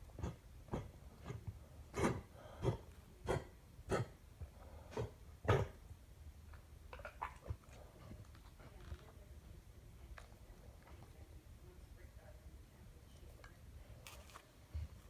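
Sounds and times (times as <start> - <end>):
dog coughing: 0.2 - 4.2, 4.9 - 5.8.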